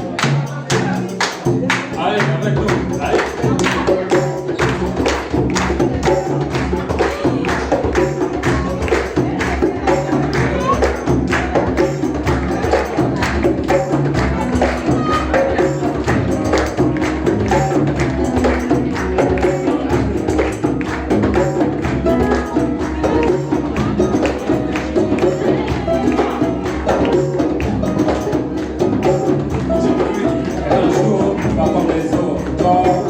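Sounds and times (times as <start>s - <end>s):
fast percussion strokes: 0.0s - 33.0s
live band music: 0.0s - 33.0s
repeating bass line: 0.0s - 33.0s.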